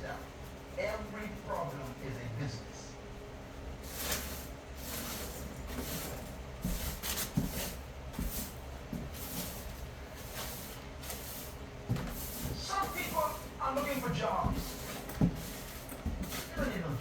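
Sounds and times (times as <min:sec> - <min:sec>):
rough scraping strokes: 0:03.8 - 0:16.7.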